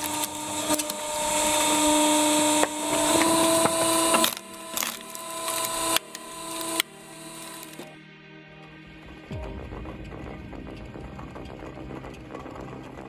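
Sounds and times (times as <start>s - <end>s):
wood-cutting machine whine: 0.0s - 8.0s.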